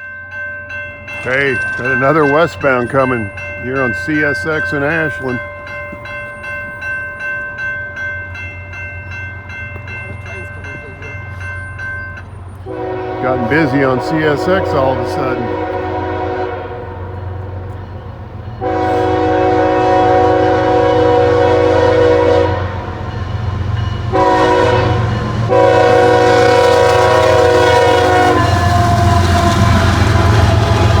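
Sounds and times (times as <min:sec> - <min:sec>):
train engine rumble: 0:00.0 - 0:31.0
locomotive air horn blasts: 0:12.7 - 0:17.7, 0:18.6 - 0:23.0, 0:24.1 - 0:31.0.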